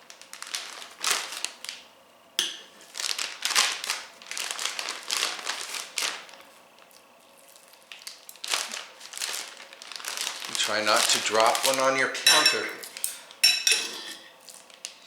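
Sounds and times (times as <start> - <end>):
plastic bag crinkling: 0.0 - 1.9, 2.8 - 13.1, 14.4 - 15.0.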